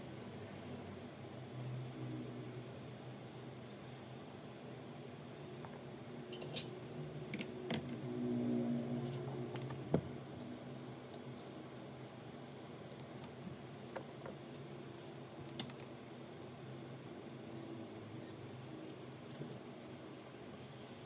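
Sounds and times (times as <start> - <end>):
faint steady hum: 0.0 - 21.0
short high beeps: 17.5 - 18.4.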